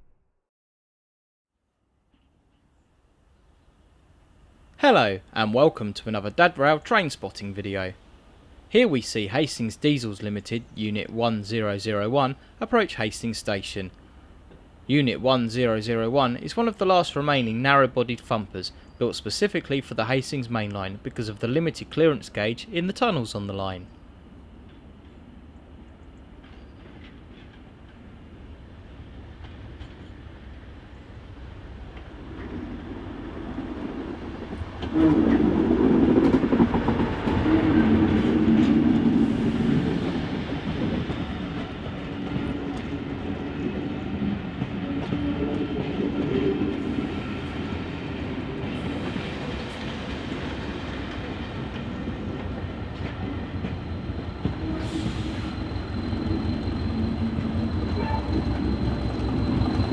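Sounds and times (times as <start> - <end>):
diesel train engine: 26.3 - 59.9
train wheels on rails: 26.4 - 28.2, 29.0 - 30.7, 31.8 - 59.9.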